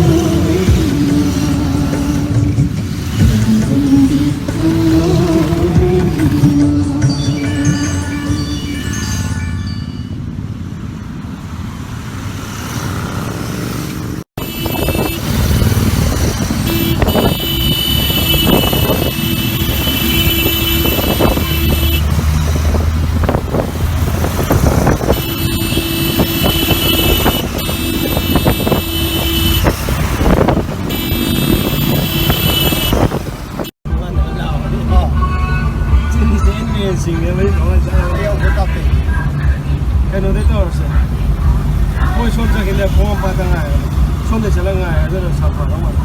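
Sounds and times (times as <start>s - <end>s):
motorcycles riding past: 10.4s - 33.7s.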